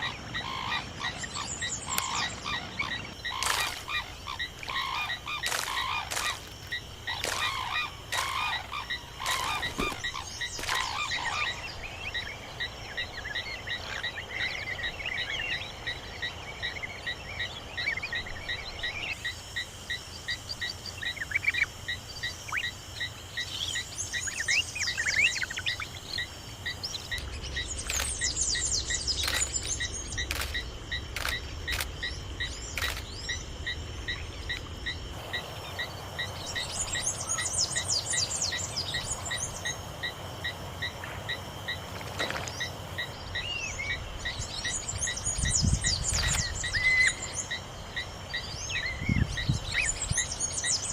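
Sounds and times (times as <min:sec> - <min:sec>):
pulsing trill of frogs or insects: 0:00.0 - 0:50.9
bird chirps: 0:23.4 - 0:39.8
sharp clicks: 0:29.2 - 0:32.0, 0:32.8 - 0:33.2.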